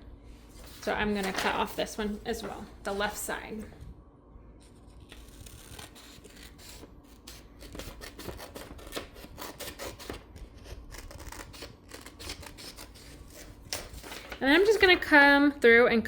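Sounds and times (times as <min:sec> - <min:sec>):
paper rustling: 0:00.5 - 0:03.2, 0:10.8 - 0:15.0
scissors snipping paper: 0:05.0 - 0:14.9.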